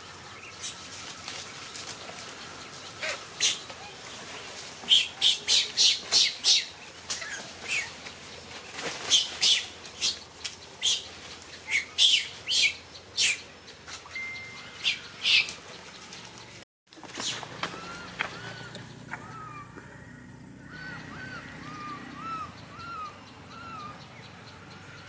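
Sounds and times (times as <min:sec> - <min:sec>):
monkeys squealing: 0:03.0 - 0:03.7, 0:17.2 - 0:19.8, 0:20.6 - 0:24.0.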